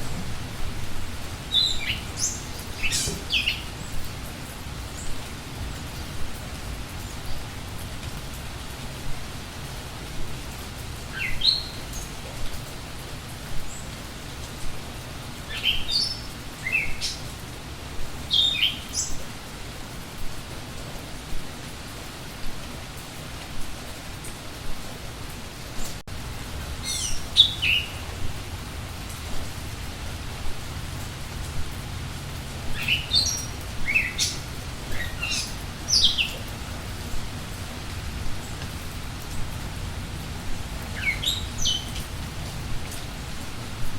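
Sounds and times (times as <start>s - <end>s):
songbird singing: 0.0s - 4.2s, 11.0s - 14.7s, 15.4s - 17.5s, 18.1s - 19.2s, 26.7s - 29.1s, 32.4s - 37.2s, 40.5s - 43.0s
songbirds chirping: 0.0s - 24.6s, 25.4s - 43.8s
steady rain falling: 0.0s - 43.9s.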